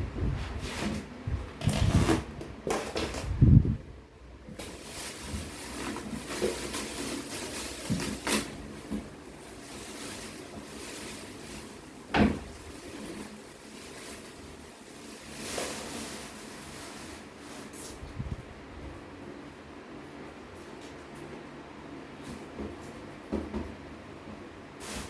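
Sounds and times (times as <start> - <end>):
cardboard rustling and scraping: 0.2 - 3.6, 4.5 - 18.0.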